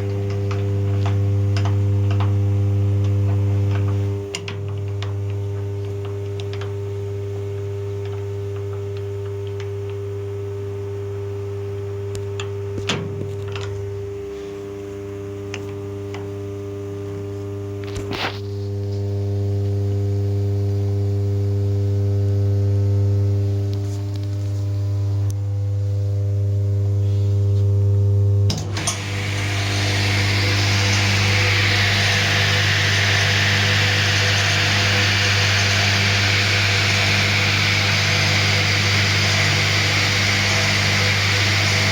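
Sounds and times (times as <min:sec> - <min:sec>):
table saw motor humming: 0:28.7 - 0:41.9.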